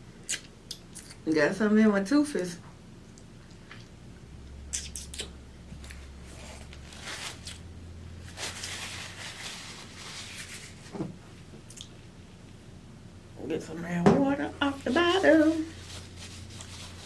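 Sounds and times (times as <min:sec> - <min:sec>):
low steady hum: 0:00.0 - 0:17.0
scratchy mouth noises: 0:04.7 - 0:05.4.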